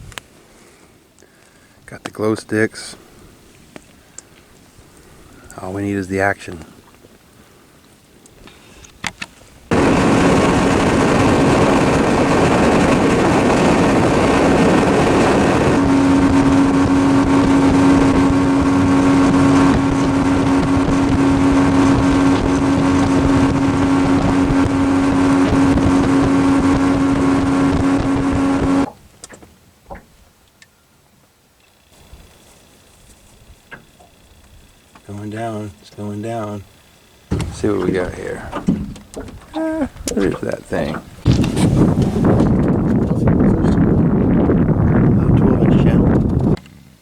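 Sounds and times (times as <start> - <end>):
motorboat engine running: 9.7 - 29.0, 36.7 - 46.6.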